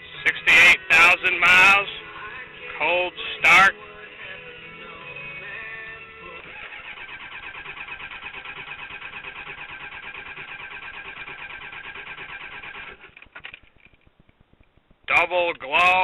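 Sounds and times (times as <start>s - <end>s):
diesel engine cranking: 6.3s - 16.0s.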